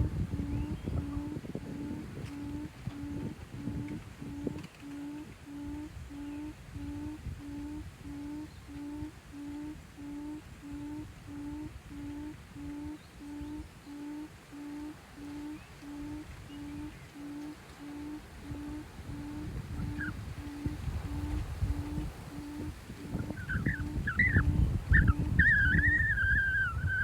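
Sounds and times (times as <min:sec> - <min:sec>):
low rustling rumble: 0:00.0 - 0:05.4, 0:16.2 - 0:27.0
bird hooting: 0:00.0 - 0:27.0.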